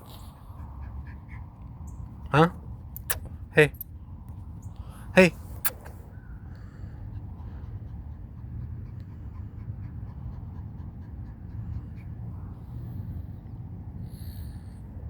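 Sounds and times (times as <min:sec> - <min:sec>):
small dog panting: 0:00.0 - 0:03.8, 0:05.2 - 0:06.0, 0:06.6 - 0:13.9.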